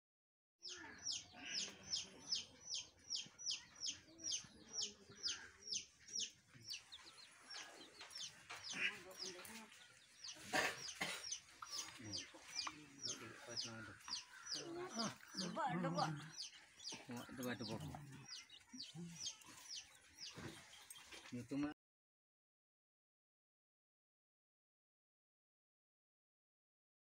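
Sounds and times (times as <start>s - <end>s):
bird chirping: 0.6s - 21.6s.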